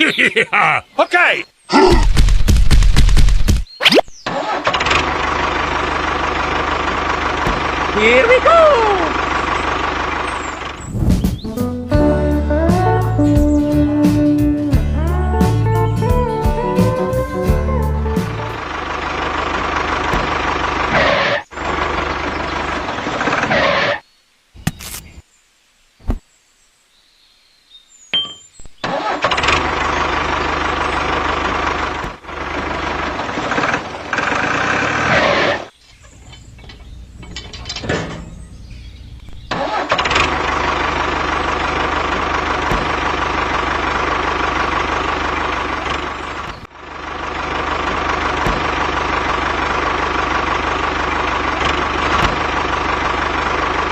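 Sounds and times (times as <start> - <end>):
small engine running: 4.3 - 11.1, 17.8 - 24.0, 28.9 - 35.7, 39.5 - 53.9.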